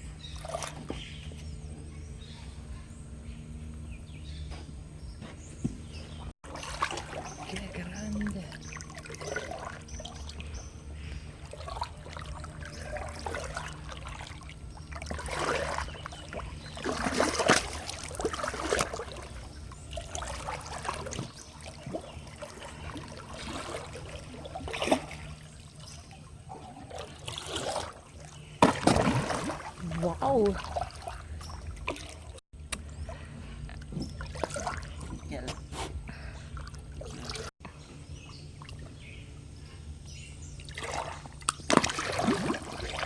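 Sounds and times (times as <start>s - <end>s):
water splashing: 0.0s - 1.0s, 5.9s - 37.5s, 40.6s - 43.0s
low hum: 0.0s - 43.0s
running water: 6.0s - 32.4s.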